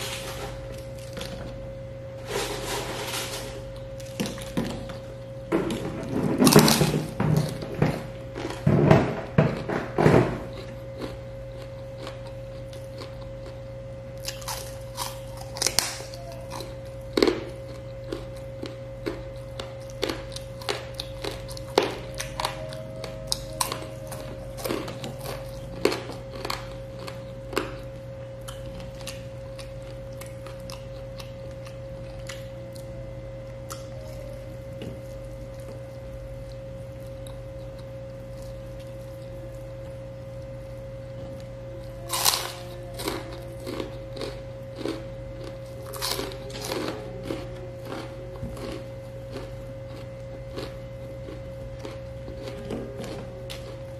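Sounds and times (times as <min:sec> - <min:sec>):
chewing and crunching: 0:00.0 - 0:01.7, 0:02.5 - 0:53.9
low hum: 0:00.0 - 0:53.9.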